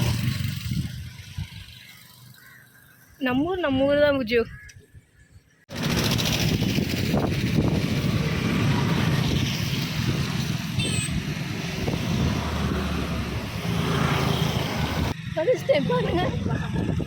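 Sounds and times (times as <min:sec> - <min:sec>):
vehicle engine and road noise: 0:00.0 - 0:04.2, 0:05.6 - 0:17.0
wind on microphone: 0:06.0 - 0:15.1, 0:16.0 - 0:17.0.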